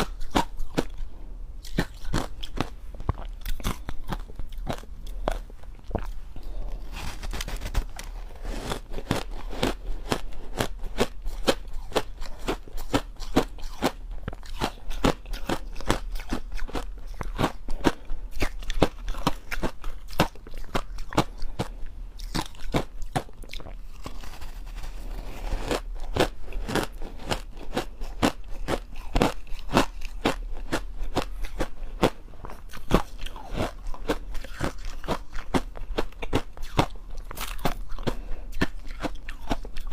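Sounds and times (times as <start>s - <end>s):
crushed ice crunching: 6.8s - 9.8s.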